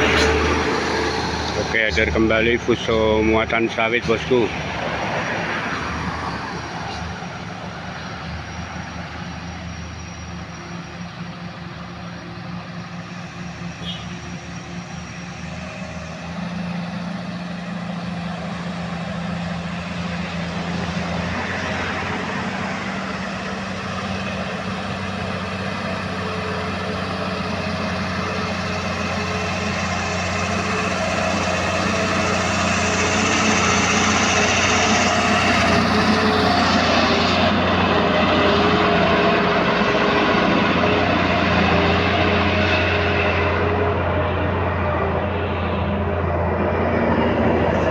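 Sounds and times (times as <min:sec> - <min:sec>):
diesel truck engine climbing: 0:00.0 - 0:47.9.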